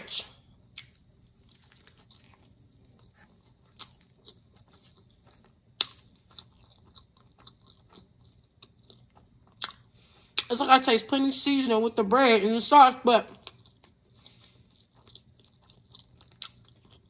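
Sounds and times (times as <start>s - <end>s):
chewing crispy food: 0.3s - 10.6s, 13.3s - 17.0s.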